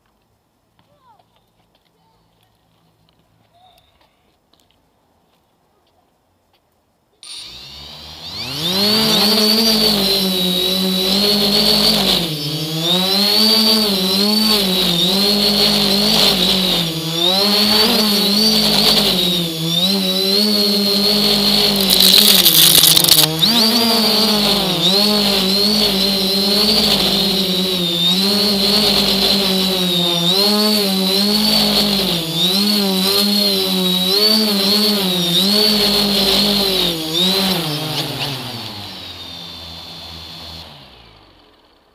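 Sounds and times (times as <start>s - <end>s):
motor humming and whining: 7.2s - 41.7s.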